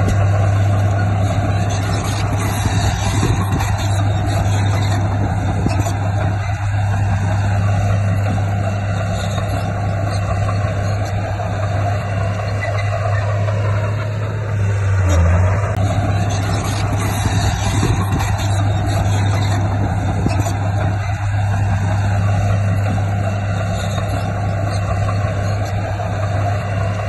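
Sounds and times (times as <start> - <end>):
bulldozer diesel engine running: 0.0 - 27.0.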